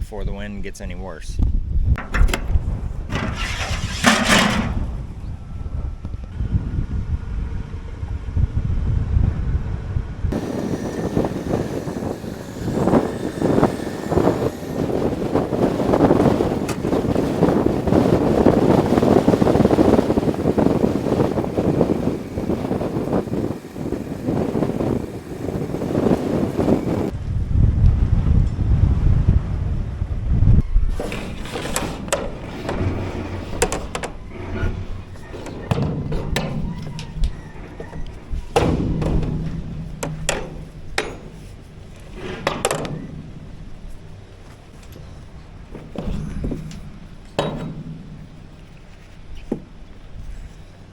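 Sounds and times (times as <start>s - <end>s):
wind buffeting microphone: 0.0s - 50.9s
steady low hum: 0.7s - 50.9s
metal clanks and knocks: 2.0s - 5.4s, 10.3s - 27.1s, 31.0s - 50.1s.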